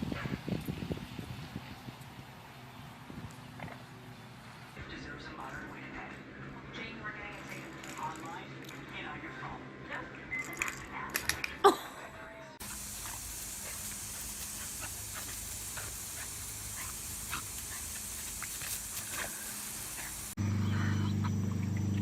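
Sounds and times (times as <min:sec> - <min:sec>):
steady hiss: 0:12.6 - 0:20.4.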